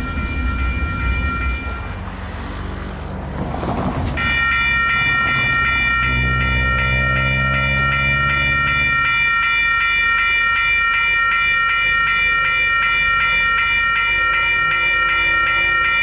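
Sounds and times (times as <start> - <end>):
diesel engine rumble: 0.0 - 16.0.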